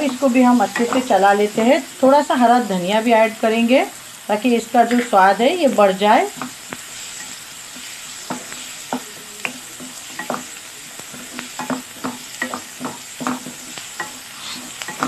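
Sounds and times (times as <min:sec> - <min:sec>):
wooden spoon scraping a pan: 0:00.0 - 0:01.7, 0:04.8 - 0:15.0
onion and tomato sizzling: 0:00.0 - 0:15.0.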